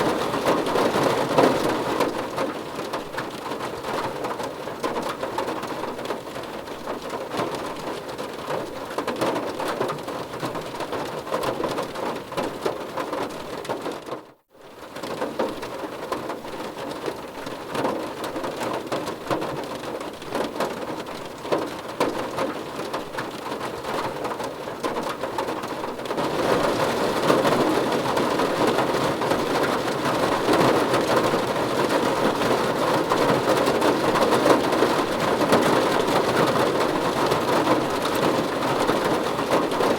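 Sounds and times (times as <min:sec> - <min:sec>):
rain drumming on a car roof: 0:00.0 - 0:39.9.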